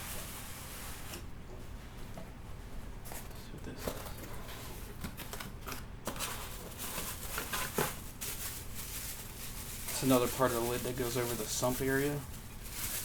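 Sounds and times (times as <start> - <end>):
packaging rustling and scraping: 3.0 - 13.0.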